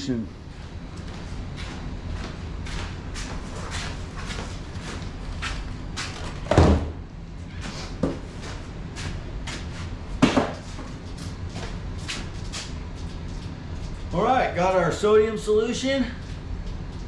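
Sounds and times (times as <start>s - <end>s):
footsteps: 0.5s - 6.4s, 7.6s - 14.1s.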